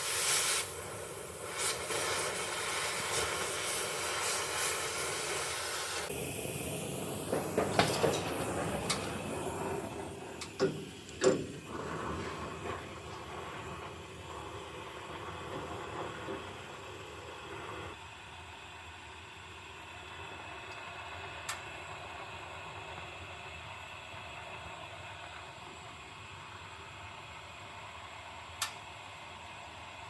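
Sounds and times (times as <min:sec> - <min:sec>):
shop background hiss: 0:00.0 - 0:18.0.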